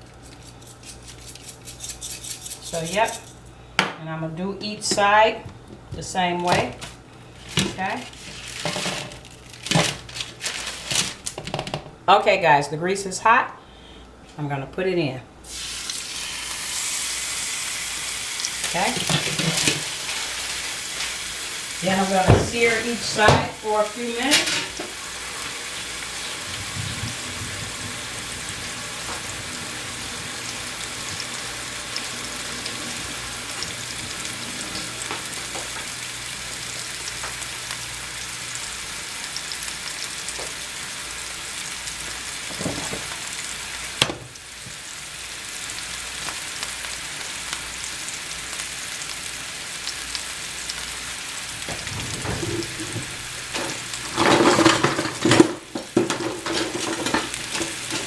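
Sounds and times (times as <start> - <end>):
meat sizzling in a skillet: 15.5 - 58.0.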